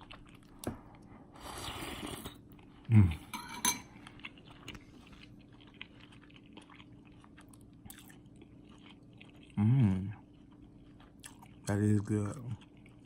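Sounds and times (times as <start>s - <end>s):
person chewing food: 0.0s - 3.3s, 3.9s - 13.0s.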